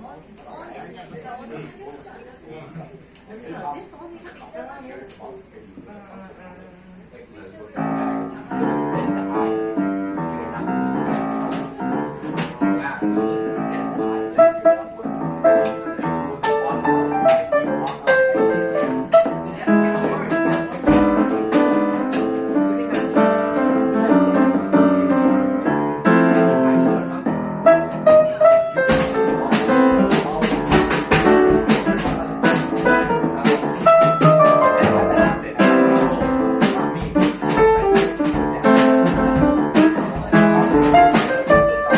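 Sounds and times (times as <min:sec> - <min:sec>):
jazz band playing: 0:07.8 - 0:41.9
piano chords and melody: 0:07.8 - 0:41.9.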